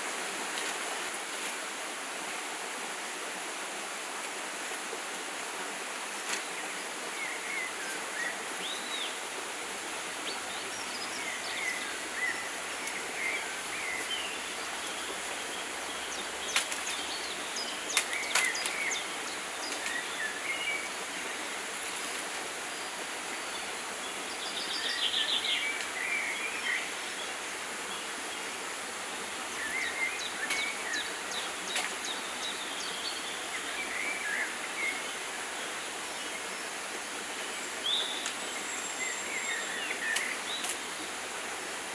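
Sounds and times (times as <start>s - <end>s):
steady forest hiss: 0.0s - 41.9s.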